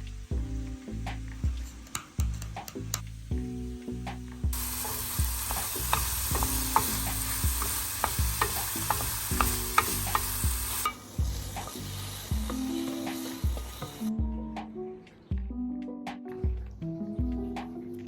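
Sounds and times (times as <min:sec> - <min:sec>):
utensil scraping and tapping pan: 0:04.6 - 0:11.0
food sizzling in a frying pan: 0:04.6 - 0:14.1.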